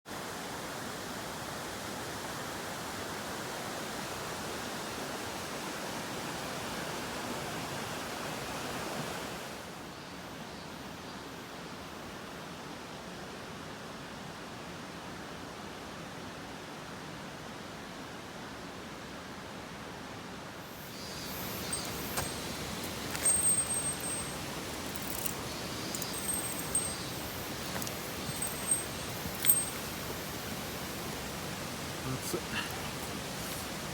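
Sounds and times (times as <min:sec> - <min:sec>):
stream rushing: 0:21.3 - 0:33.9.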